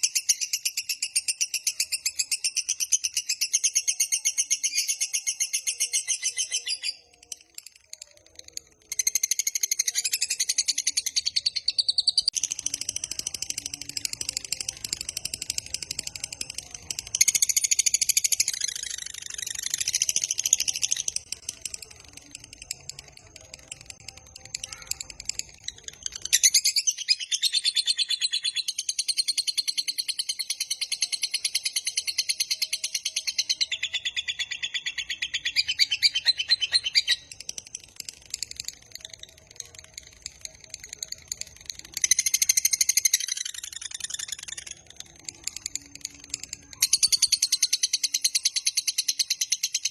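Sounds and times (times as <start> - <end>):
lovebird chattering trill: 22.6 - 49.9.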